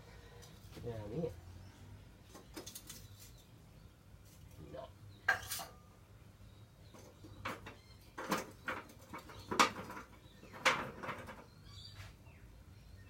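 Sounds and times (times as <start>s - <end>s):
rustling and scraping: 2.2s - 3.5s, 6.9s - 12.2s
hard objects knocking: 7.0s - 11.5s.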